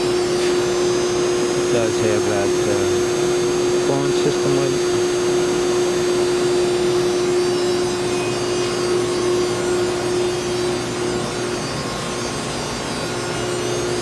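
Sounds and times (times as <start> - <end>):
mid-pitched hum: 0.0 - 11.2
machine whir: 0.0 - 14.0.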